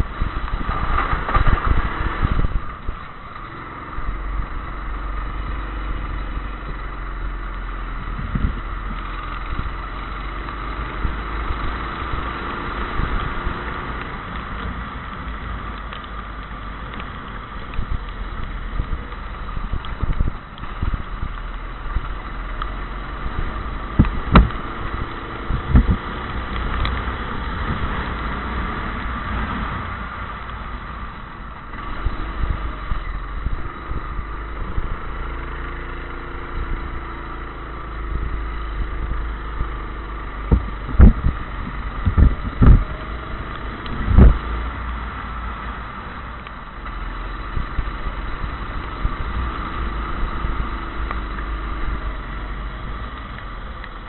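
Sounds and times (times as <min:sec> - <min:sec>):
go-kart engine running: 0:00.0 - 0:54.0
steady low rumble: 0:00.0 - 0:54.0.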